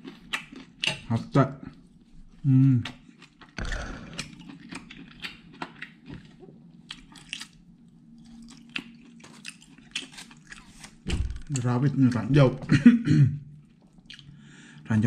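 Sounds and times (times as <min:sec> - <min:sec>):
man chewing with mouth open: 0:00.0 - 0:01.0, 0:01.7 - 0:11.0, 0:13.5 - 0:14.5.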